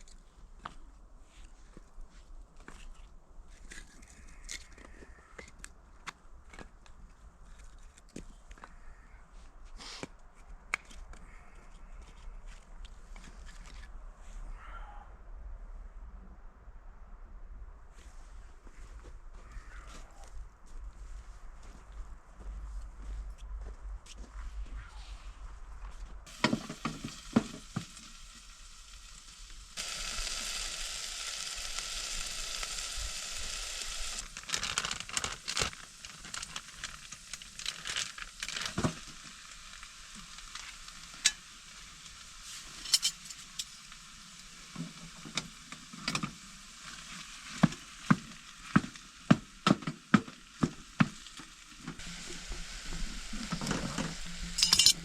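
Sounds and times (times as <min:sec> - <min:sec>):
food sizzling in a frying pan: 0:26.3 - 0:55.0.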